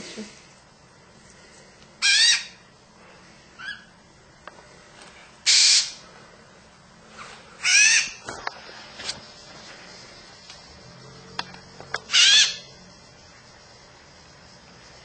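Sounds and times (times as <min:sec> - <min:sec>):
macaw harsh calls: 0:02.0 - 0:02.7, 0:03.6 - 0:03.9, 0:05.4 - 0:06.0, 0:07.6 - 0:08.2, 0:12.0 - 0:12.8.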